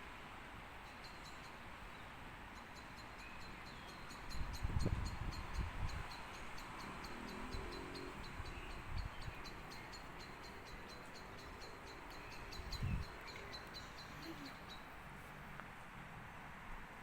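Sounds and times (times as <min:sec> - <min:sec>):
bird chirping: 0:02.6 - 0:15.0
wind blowing: 0:04.2 - 0:15.5.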